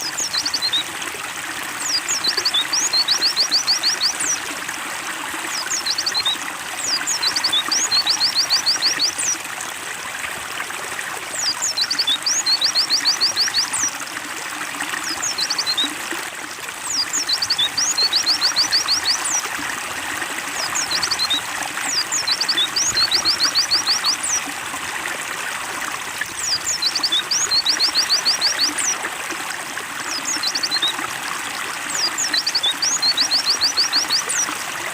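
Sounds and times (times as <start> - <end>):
small bird singing: 0.0 - 0.8, 1.8 - 4.4, 5.5 - 9.4, 11.4 - 14.0, 15.0 - 15.9, 16.9 - 19.5, 20.6 - 24.4, 26.4 - 29.0, 30.0 - 31.0, 31.9 - 34.5
trickling water: 0.0 - 34.9.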